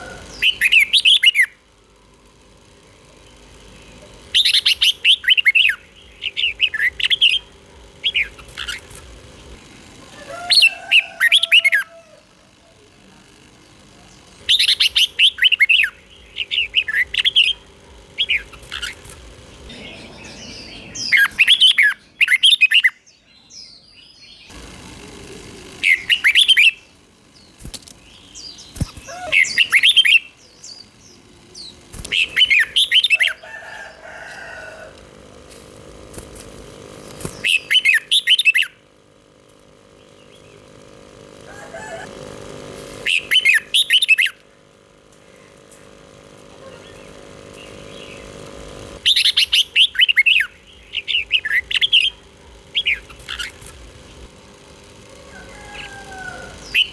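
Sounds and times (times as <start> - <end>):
bird singing liquid notes: 3.2 - 8.9, 14.1 - 24.5, 25.8 - 34.3, 37.3 - 38.9, 43.0 - 44.6, 46.7 - 54.3, 55.3 - 56.9.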